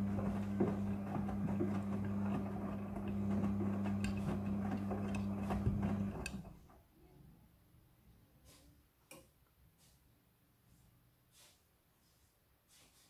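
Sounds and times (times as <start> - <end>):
washing machine motor hum: 0.0 - 6.6.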